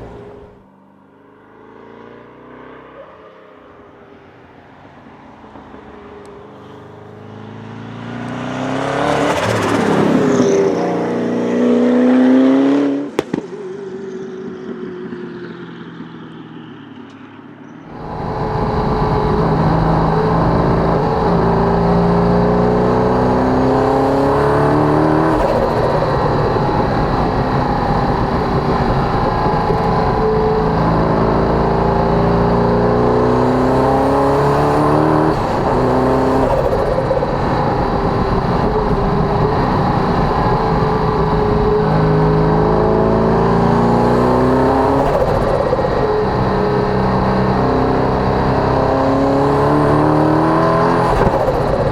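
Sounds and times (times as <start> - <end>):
car engine accelerating hard: 0.0 - 3.3, 5.4 - 17.1, 17.9 - 51.9
sharp exhaust pop: 13.1 - 13.8.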